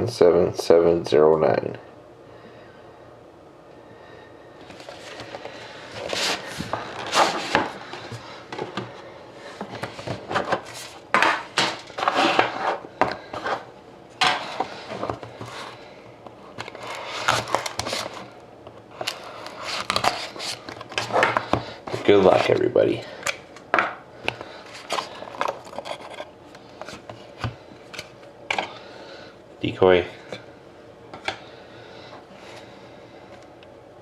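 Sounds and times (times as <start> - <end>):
cardboard and plastic wrap rustling: 4.6 - 15.8, 16.5 - 22.8, 24.4 - 28.3.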